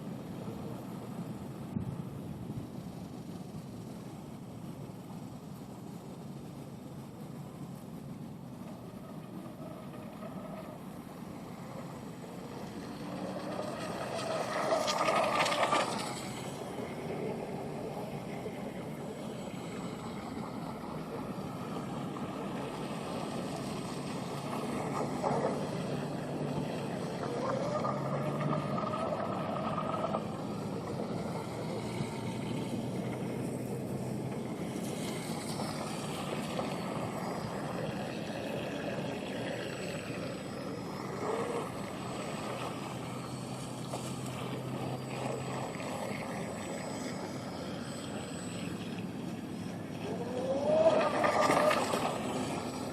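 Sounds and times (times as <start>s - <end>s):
water noise: 0.0s - 52.9s
electric boat motor whirring: 7.2s - 52.9s.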